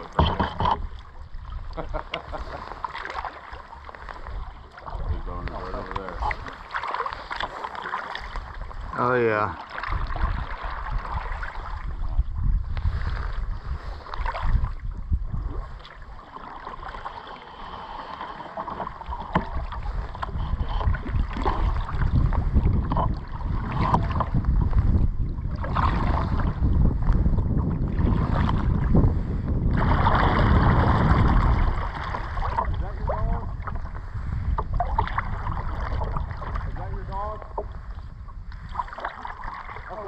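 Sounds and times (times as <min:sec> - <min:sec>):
kayak paddle splashing in water: 0:00.0 - 0:40.0
wind buffeting microphone: 0:04.0 - 0:06.7, 0:08.3 - 0:16.2, 0:18.8 - 0:40.0.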